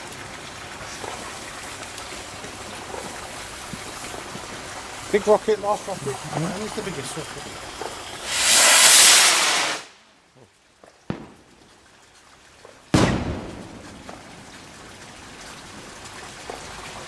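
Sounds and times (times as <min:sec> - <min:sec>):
firework rocket launch hiss: 0:05.8 - 0:10.0
firework rocket bursting bang: 0:07.8 - 0:09.9, 0:13.0 - 0:13.8.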